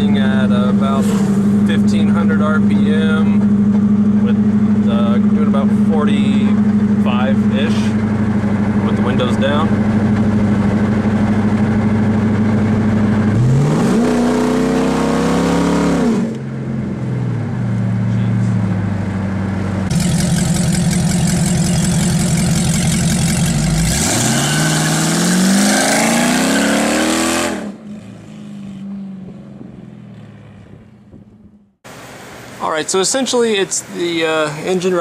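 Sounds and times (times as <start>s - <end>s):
car engine droning: 0.0s - 31.9s.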